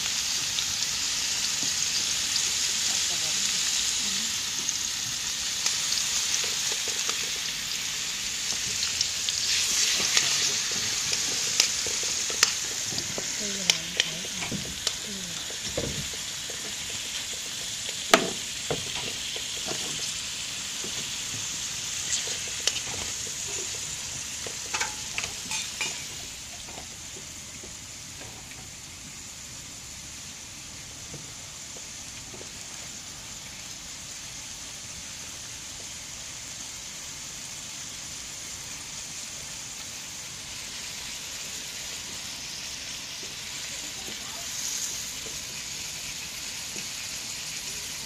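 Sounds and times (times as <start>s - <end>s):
food sizzling in a wok: 0.0s - 48.0s
utensil clicking against pan: 9.9s - 20.0s, 22.1s - 26.1s.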